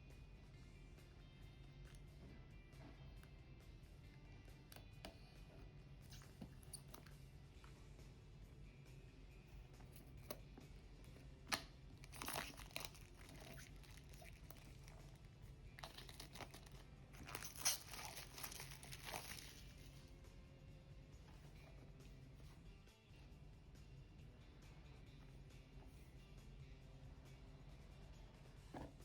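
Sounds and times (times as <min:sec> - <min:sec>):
packaging crinkling and tearing: 0:12.0 - 0:14.8, 0:15.8 - 0:19.8.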